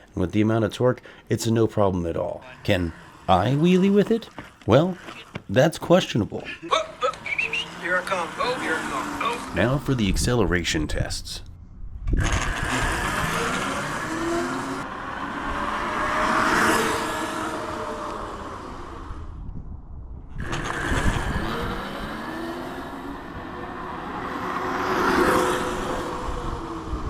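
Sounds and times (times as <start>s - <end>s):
electric mini bike motor whining: 2.4s - 5.5s, 6.6s - 9.6s, 12.1s - 19.5s, 20.4s - 27.0s
tyre and wind noise: 6.5s - 27.0s.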